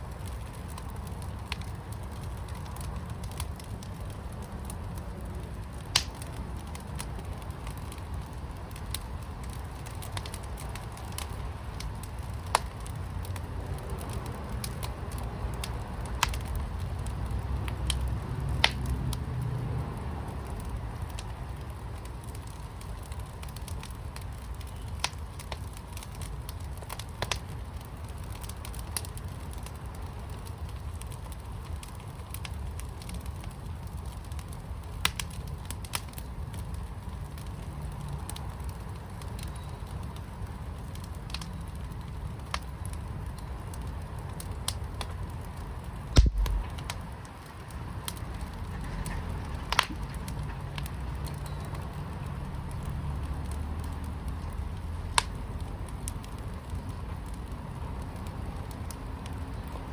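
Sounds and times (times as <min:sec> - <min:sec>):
low fire rumble: 0:00.0 - 0:59.9
wood fire crackling: 0:00.0 - 0:59.9
thump: 0:46.2 - 0:46.8.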